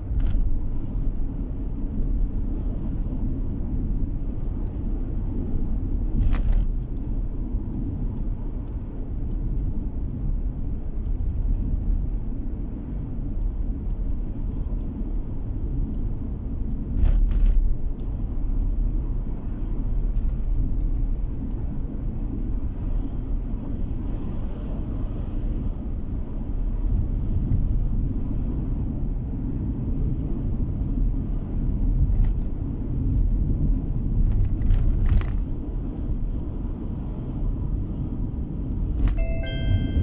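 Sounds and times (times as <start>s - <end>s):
car interior road rumble: 0.0s - 40.0s
short electronic chime: 39.2s - 40.0s.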